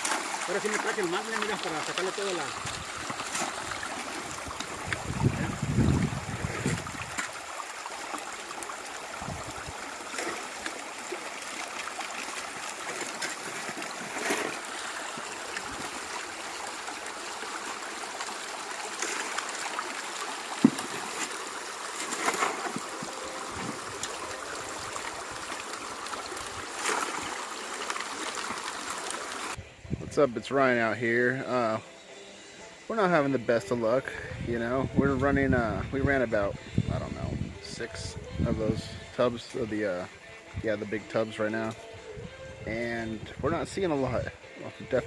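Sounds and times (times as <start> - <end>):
river water running over rocks: 0.0 - 29.6.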